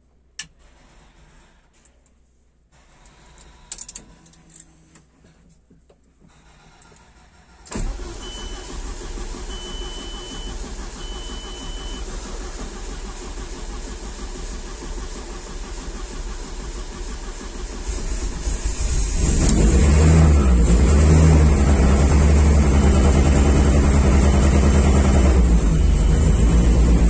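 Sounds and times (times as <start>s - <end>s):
car engine running: 7.8s - 27.0s.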